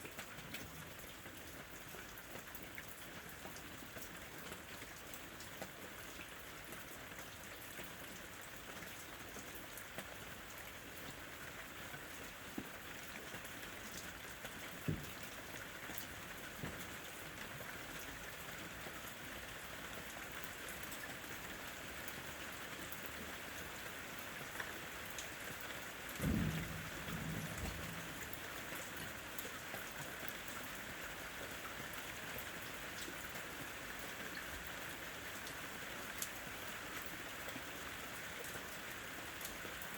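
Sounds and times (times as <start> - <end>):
rain pattering on surfaces: 0.0 - 39.9
low rumble of thunder: 26.2 - 29.2.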